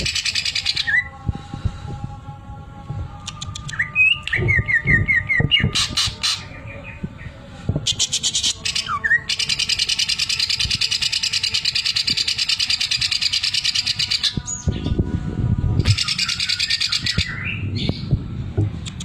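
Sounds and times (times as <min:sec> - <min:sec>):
low thuds: 0:17.2 - 0:18.9.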